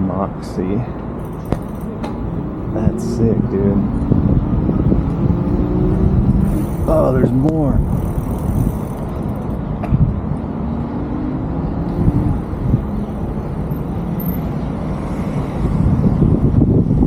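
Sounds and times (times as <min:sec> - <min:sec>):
tyre and road noise: 0:00.0 - 0:17.0
wind rumbling on microphone: 0:00.8 - 0:17.0.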